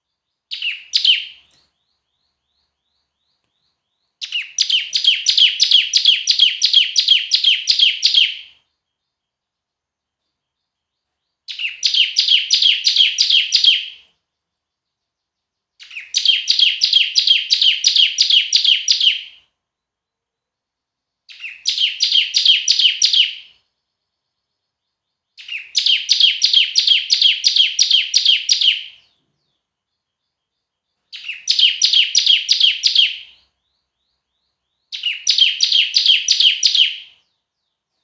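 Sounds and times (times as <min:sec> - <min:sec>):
bird singing sharp repeated notes: 0:00.0 - 0:38.0.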